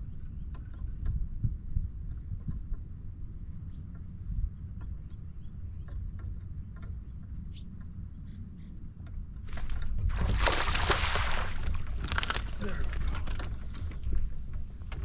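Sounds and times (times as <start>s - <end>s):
wind rumble on microphone: 0.0s - 15.0s
faint ticks: 0.2s - 2.9s, 3.6s - 9.9s
water splashing: 10.1s - 12.6s.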